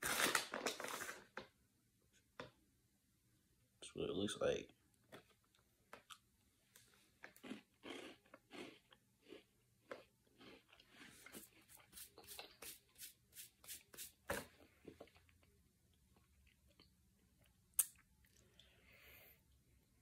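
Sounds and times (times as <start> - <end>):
person chewing crisp wafer: 7.2 - 12.4.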